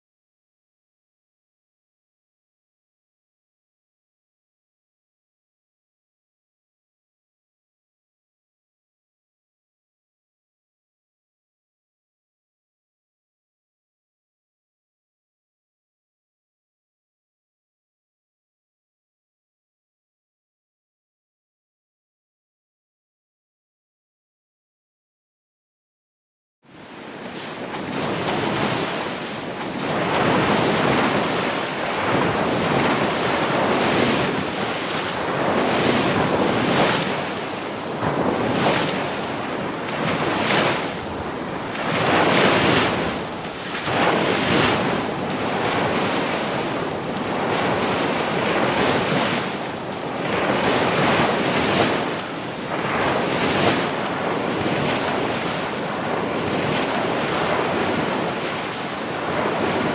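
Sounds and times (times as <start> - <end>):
ocean surf breaking: 26.7 - 59.9.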